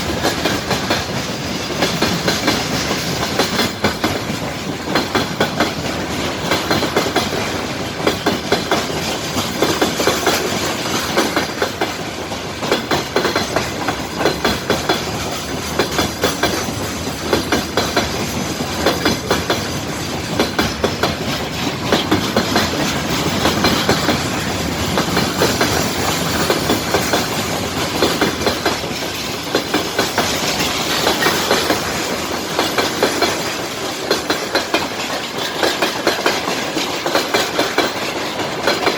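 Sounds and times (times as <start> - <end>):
freight train rumble: 0.0 - 38.9
train wheels clicking over rail joints: 0.0 - 38.9.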